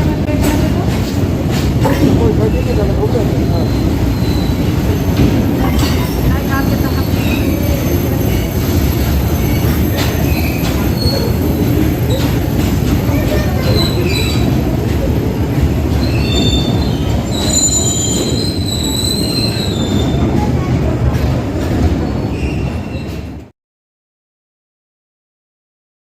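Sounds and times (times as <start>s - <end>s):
freight train rumbling past: 0.0s - 23.5s
train clanks: 0.0s - 23.5s
high wheel squeals: 3.5s - 5.2s, 16.0s - 20.2s.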